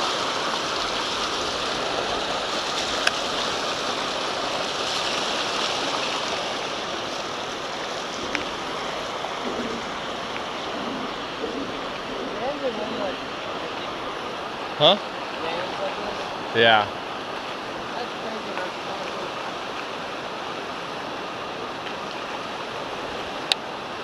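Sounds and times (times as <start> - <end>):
water rushing through spillway: 0.0 - 24.0.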